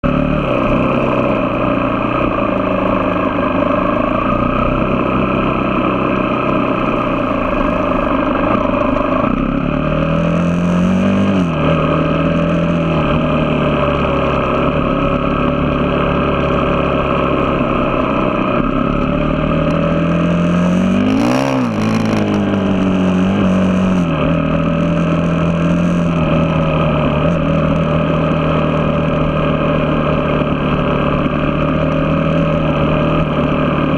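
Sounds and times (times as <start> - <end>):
vehicle engine revving: 0.0 - 33.9.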